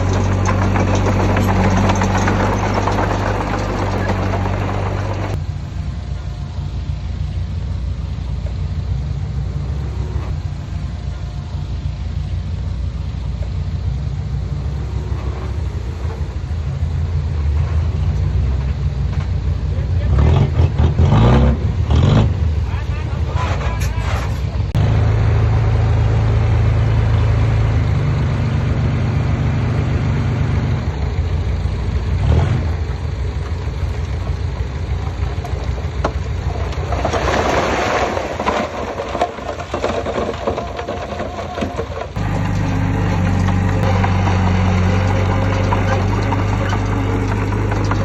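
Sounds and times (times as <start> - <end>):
heavy diesel engine running: 0.0 - 48.0.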